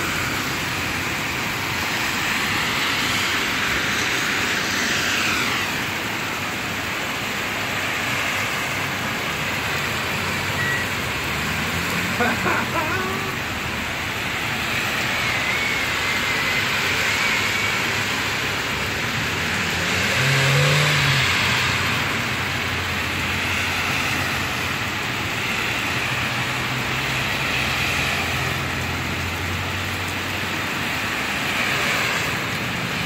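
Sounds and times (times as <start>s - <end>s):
heavy rain on wet pavement: 0.0s - 33.0s
car engine humming: 9.0s - 15.1s.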